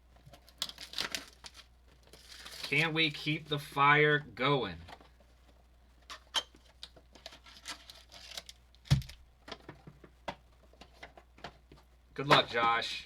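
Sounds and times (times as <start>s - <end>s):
foil wrapper tearing and crinkling: 0.4s - 2.9s, 7.2s - 9.2s.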